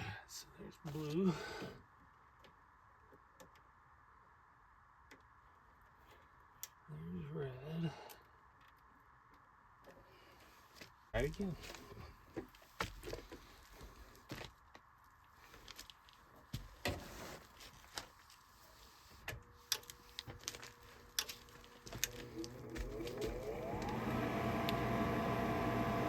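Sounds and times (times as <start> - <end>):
fan motor spinning up: 21.4 - 26.0.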